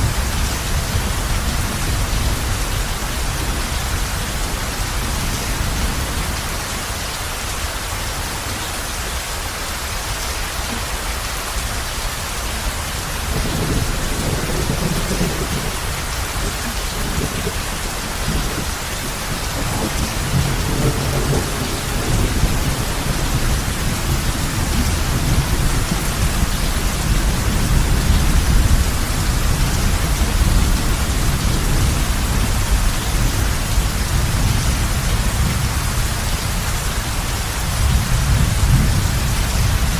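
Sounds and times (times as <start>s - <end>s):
heavy rain on a roof: 0.0s - 39.9s
low rumble of thunder: 12.9s - 36.7s, 37.4s - 39.9s.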